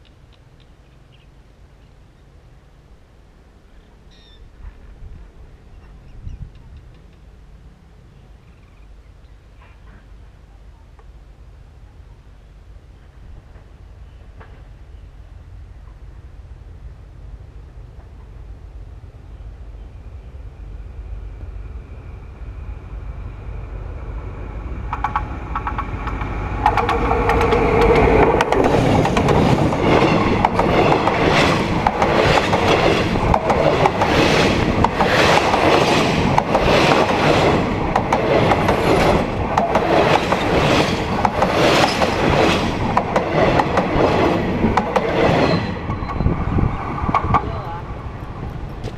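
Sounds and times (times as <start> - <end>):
train passing rumble: 0.0 - 48.9
wheels clacking over rails: 24.8 - 46.2.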